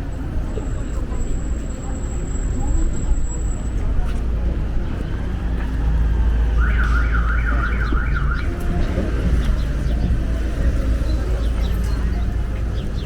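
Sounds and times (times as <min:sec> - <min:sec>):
city street rumble: 0:00.0 - 0:13.0.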